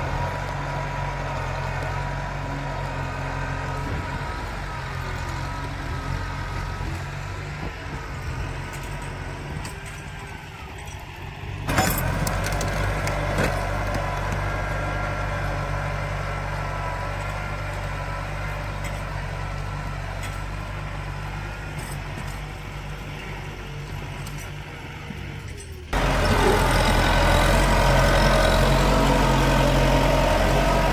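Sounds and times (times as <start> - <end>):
tractor engine running: 0.0 - 30.9.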